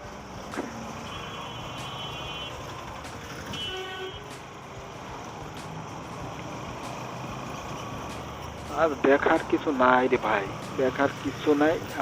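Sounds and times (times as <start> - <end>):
traffic engines rumbling: 0.0 - 12.0
car horn toots: 1.0 - 2.7, 3.4 - 4.4.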